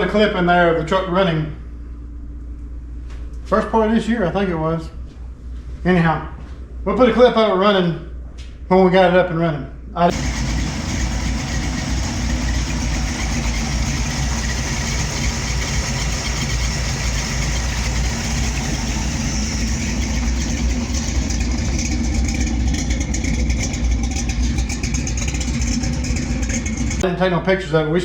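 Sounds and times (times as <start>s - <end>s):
pickup engine running: 10.1s - 27.0s.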